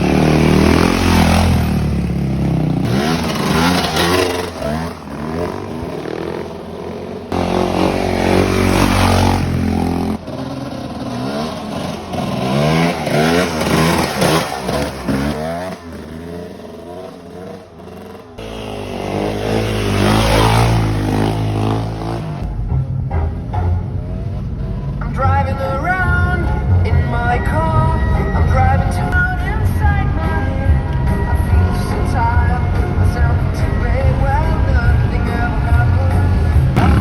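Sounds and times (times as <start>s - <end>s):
dirt bike engine revving: 0.0s - 22.5s, 34.1s - 37.0s.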